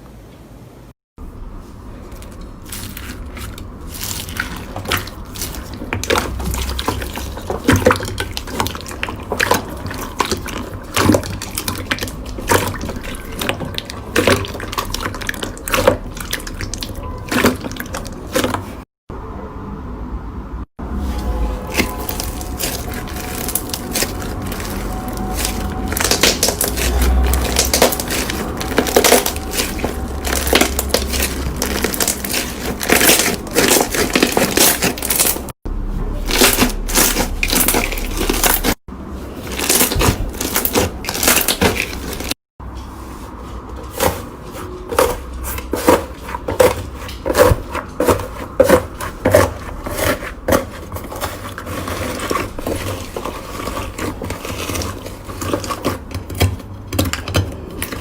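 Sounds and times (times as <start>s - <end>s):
slime crackling and popping: 21.3s - 35.5s, 36.2s - 38.8s, 39.5s - 42.4s.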